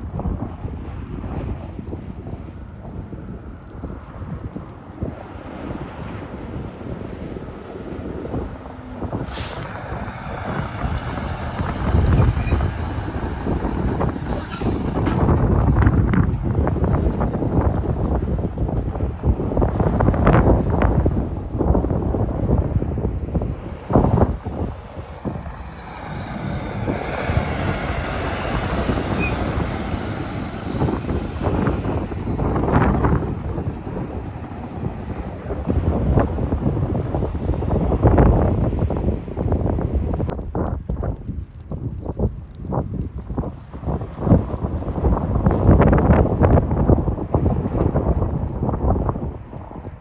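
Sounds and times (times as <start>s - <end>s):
truck driving past: 5.1s - 18.6s, 23.9s - 39.4s.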